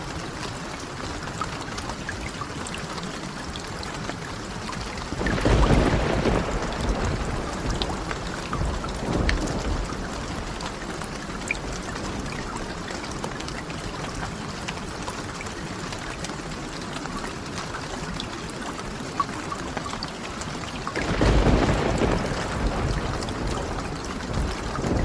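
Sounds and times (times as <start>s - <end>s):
rain falling: 0.0s - 25.0s
raindrop clicks: 1.2s - 25.0s
thunder rumble: 5.1s - 13.2s, 20.9s - 25.0s.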